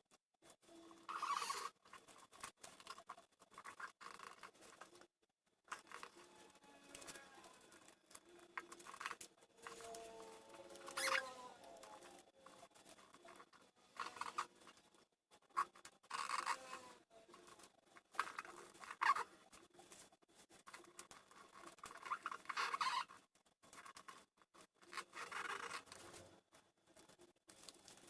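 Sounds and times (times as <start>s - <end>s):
paper rustling and crinkling: 5.7s - 15.0s, 17.3s - 28.0s.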